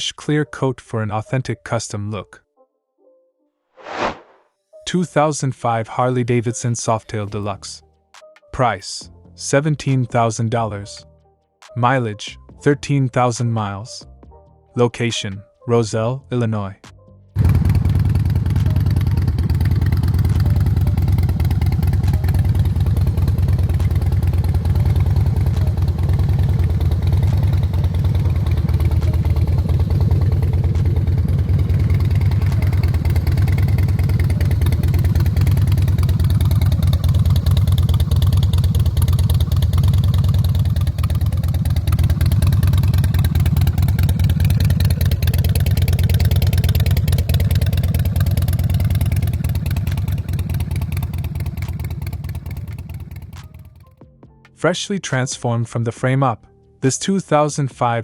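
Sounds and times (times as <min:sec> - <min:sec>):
motorcycle engine running: 0:17.4 - 0:53.9.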